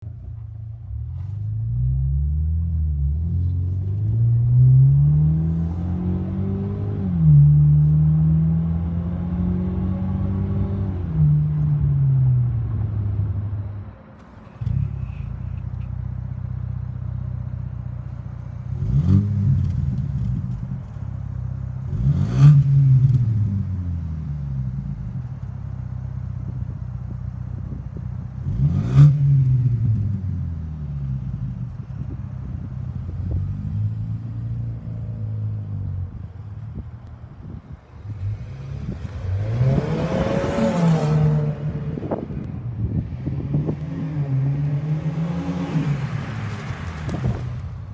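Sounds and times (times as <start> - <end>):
car engine idling and revving: 0.0 - 47.9
car engine accelerating with upshifts: 0.1 - 47.9
car engine starting: 13.4 - 47.9.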